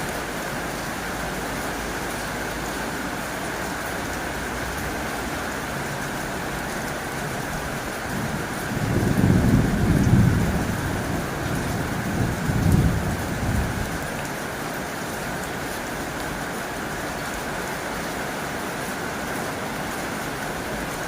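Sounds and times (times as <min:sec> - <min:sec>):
heavy rain on a tin roof: 0:00.0 - 0:21.0
low rumble of thunder: 0:08.0 - 0:14.1.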